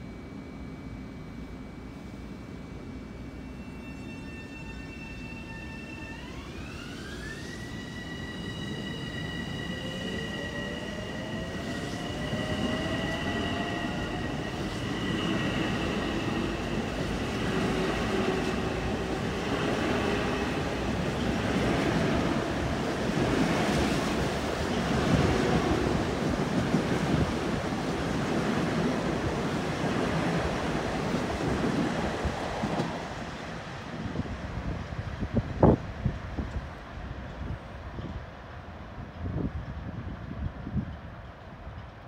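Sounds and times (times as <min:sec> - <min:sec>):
train motor whine: 0:00.0 - 0:29.4
lower motor whine: 0:00.0 - 0:31.4
wheels rumbling on rail: 0:06.1 - 0:42.0.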